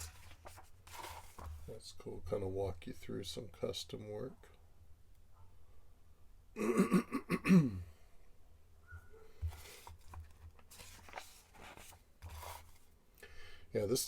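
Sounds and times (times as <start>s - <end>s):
magazine pages rustling: 0.0s - 1.8s, 9.4s - 13.0s
man clearing throat: 6.6s - 7.9s.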